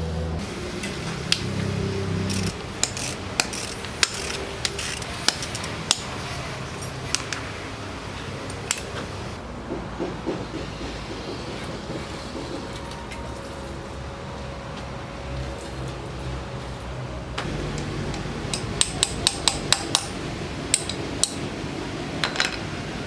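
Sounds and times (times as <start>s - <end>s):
low steady hum: 13.2s - 23.0s.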